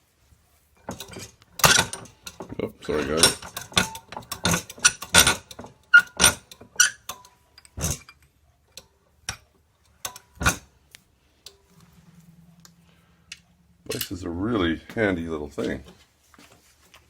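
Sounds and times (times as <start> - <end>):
metal hardware and tools clacking: 0.8 - 9.4
faint low hum: 10.8 - 16.4.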